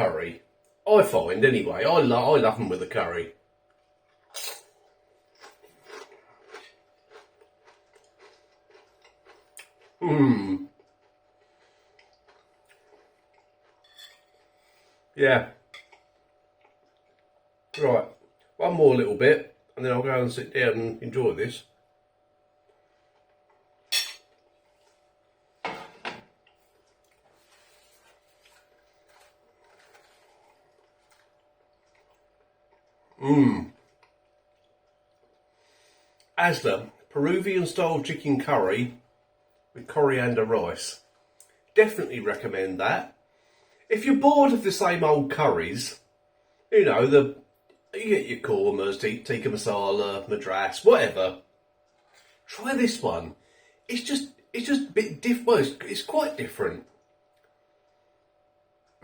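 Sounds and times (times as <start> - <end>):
tortilla chips crunching: 4.0 - 14.8, 26.5 - 35.5
cutlery clinking on dish: 23.9 - 24.3.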